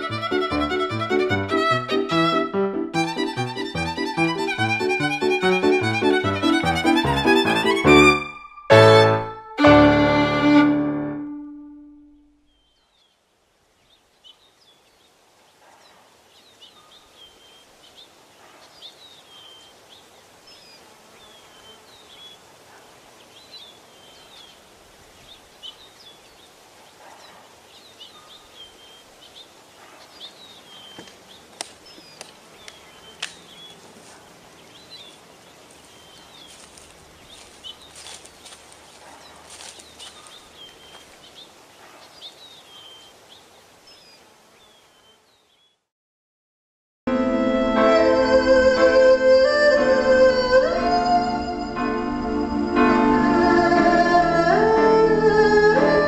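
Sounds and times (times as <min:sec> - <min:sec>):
rustling in dry leaves: 0:12.8 - 0:44.8
bird chirping call: 0:27.2 - 0:45.8.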